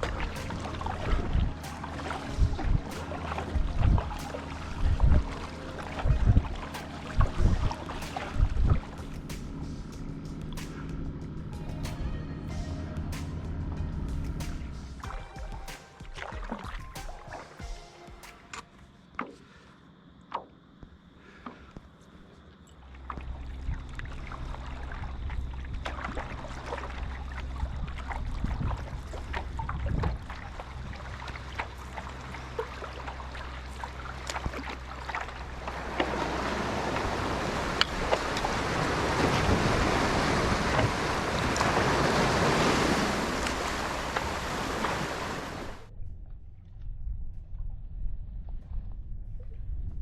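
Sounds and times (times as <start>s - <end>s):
waves splashing: 0.0s - 10.9s, 14.1s - 18.7s, 23.0s - 45.9s
small water slaps: 0.0s - 11.0s, 14.2s - 18.6s, 22.9s - 45.9s
wind buffeting microphone: 0.0s - 15.6s, 23.2s - 32.4s, 35.5s - 50.0s.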